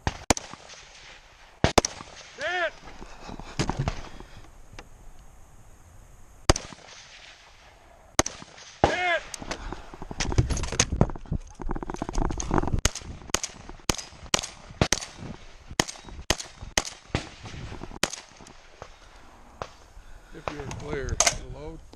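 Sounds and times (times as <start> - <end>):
gunshots: 0.0 - 2.7, 6.5 - 9.5, 12.8 - 18.9.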